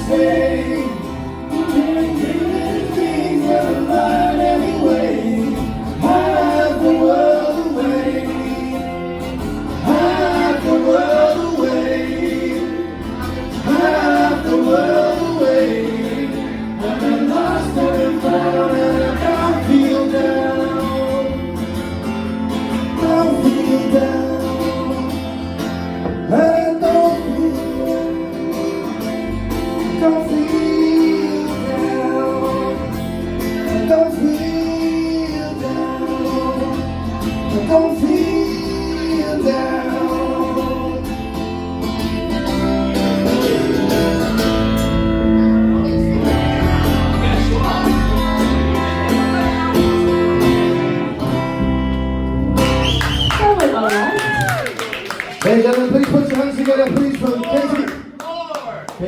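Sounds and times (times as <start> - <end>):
person singing: 0.0 - 21.7, 22.6 - 29.1, 29.8 - 41.4, 45.0 - 50.8.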